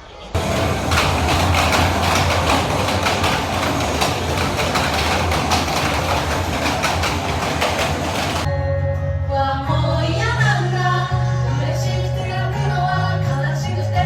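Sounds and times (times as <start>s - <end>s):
subway train rumble and rattle: 0.3s - 8.5s
faint clatter: 0.4s - 8.5s.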